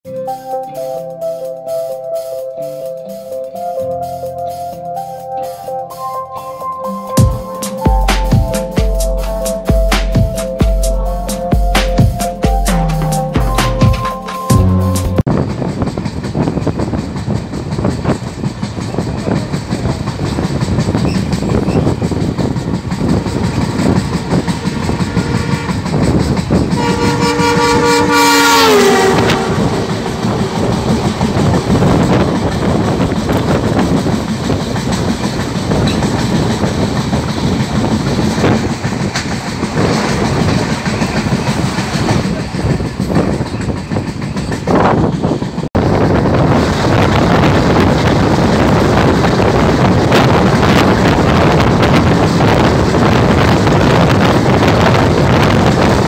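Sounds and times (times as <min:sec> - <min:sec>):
train wheel clatter: 0:15.3 - 0:56.0
train horn: 0:23.1 - 0:26.1, 0:26.7 - 0:32.2.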